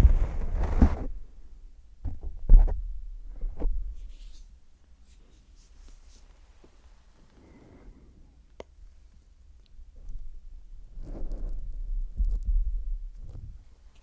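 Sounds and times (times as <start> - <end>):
heavy low thump: 0.0 - 1.2
scratchy rubbing on microphone: 0.0 - 1.2, 10.9 - 12.5.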